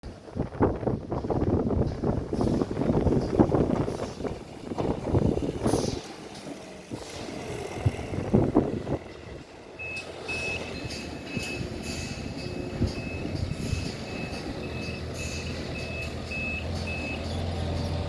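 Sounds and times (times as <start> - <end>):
wind on microphone: 0.1 - 6.1, 6.8 - 9.5, 10.8 - 14.8
truck reversing alarm beeping: 8.9 - 18.0.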